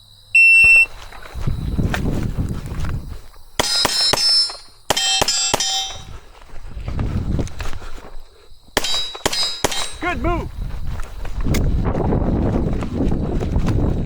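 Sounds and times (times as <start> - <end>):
steel targets ringing: 3.7 - 6.1.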